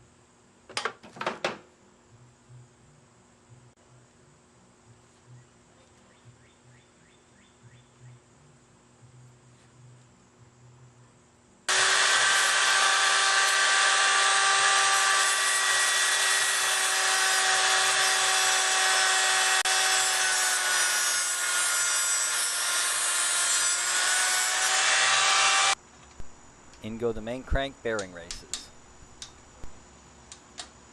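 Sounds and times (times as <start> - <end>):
power tool high whine: 11.7 - 25.8.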